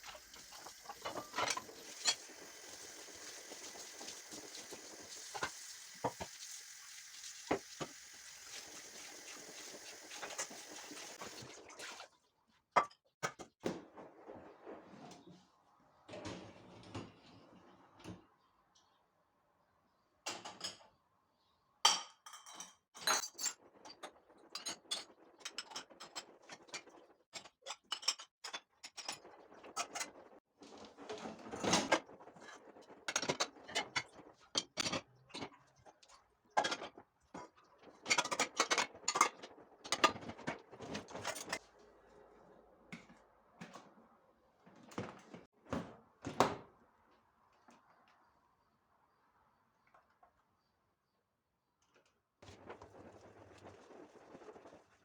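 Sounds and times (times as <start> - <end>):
kitchen items clattering on counter: 21.9 - 30.2, 36.6 - 41.6.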